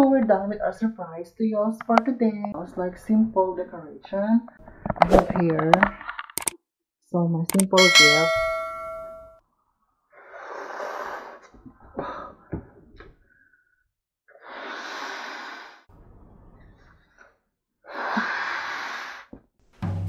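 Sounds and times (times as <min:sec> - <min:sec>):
short clicks: 0:06.3 - 0:06.6, 0:07.5 - 0:07.8.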